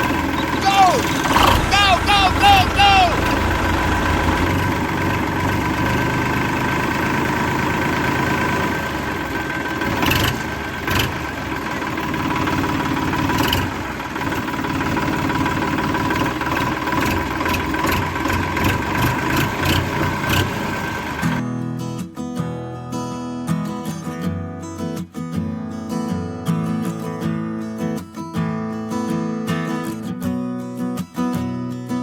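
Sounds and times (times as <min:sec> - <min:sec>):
small motor running: 0:00.0 - 0:21.4.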